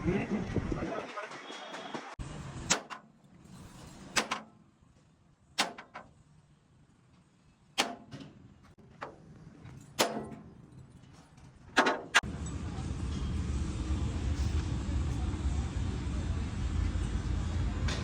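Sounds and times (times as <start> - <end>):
hammer striking metal: 7.8 - 8.2
steady low rumble: 12.2 - 18.0.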